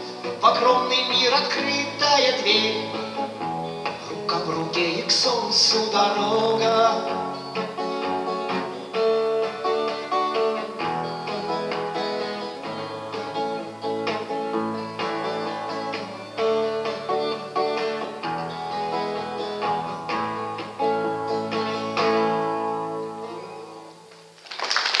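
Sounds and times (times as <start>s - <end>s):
acoustic guitar playing: 0.0s - 24.4s.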